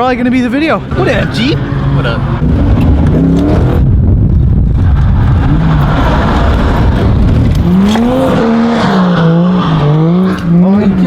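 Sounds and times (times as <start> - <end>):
car engine revving hard: 0.9 - 11.0.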